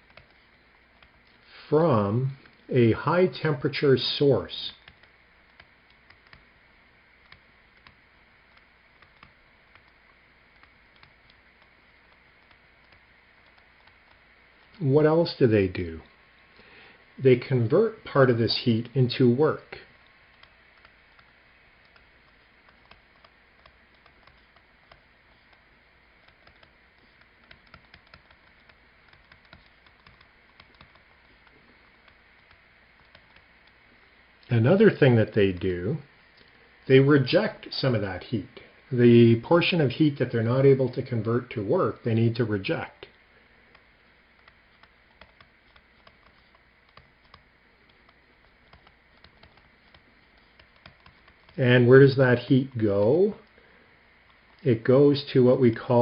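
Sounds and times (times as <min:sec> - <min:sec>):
faint small clicks and taps: 0:04.7 - 0:14.8, 0:19.8 - 0:34.5, 0:43.7 - 0:51.6.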